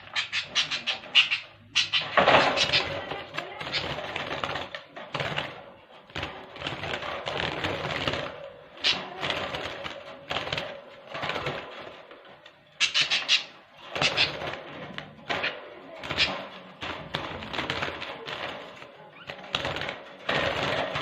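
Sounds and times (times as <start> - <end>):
budgerigars chattering and squawking: 0.0 - 4.8, 8.8 - 9.7, 12.7 - 16.5
rustling and clattering in cage: 0.0 - 21.0.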